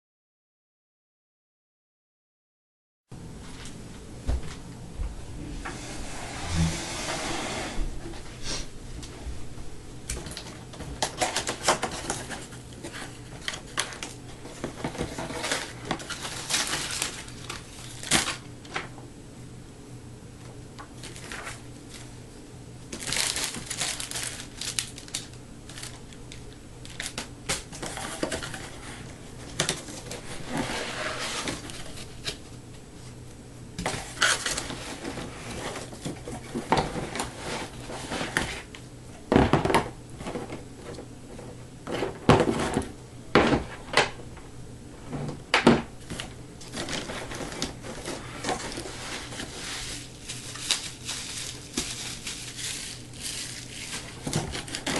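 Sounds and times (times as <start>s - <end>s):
cardboard and plastic rustling: 10.1s - 19.0s, 20.8s - 22.2s, 22.9s - 33.2s, 33.8s - 44.2s, 45.0s - 54.9s.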